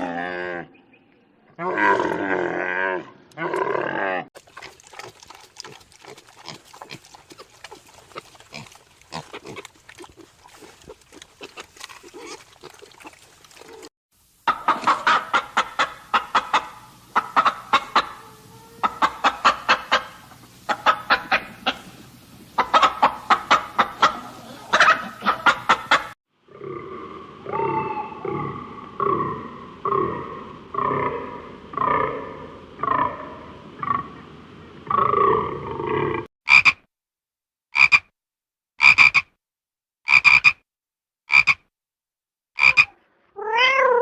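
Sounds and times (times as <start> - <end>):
rapid repeated animal calls: 14.5 - 21.9, 38.8 - 39.3, 40.1 - 40.6, 41.3 - 41.6, 42.6 - 43.0
animal calls: 26.7 - 33.2, 42.6 - 44.0.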